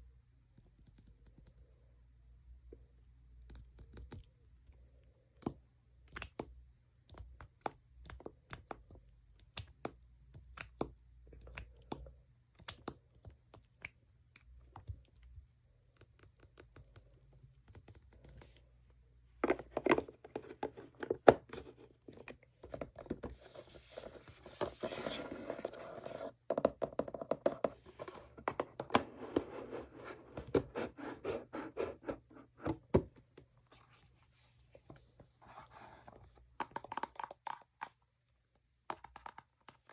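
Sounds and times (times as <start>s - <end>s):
scratching and rubbing packaging: 27.8s - 32.6s.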